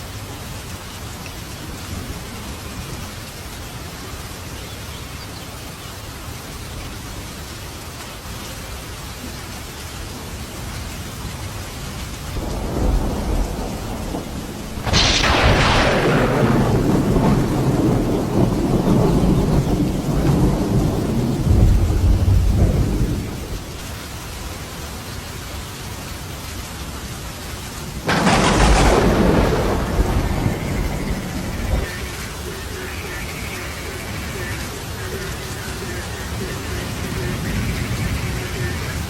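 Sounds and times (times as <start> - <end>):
steady rain: 0.0 - 39.0
sharp thunderclap: 12.4 - 23.8, 28.1 - 32.0
thunder rumbling: 12.4 - 23.9, 28.0 - 33.3.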